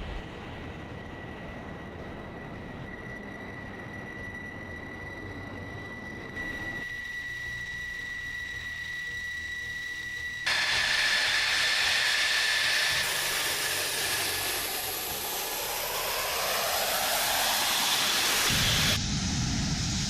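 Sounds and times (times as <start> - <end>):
jet engine whine and hiss: 0.0 - 20.0
deep rumble: 14.8 - 20.0.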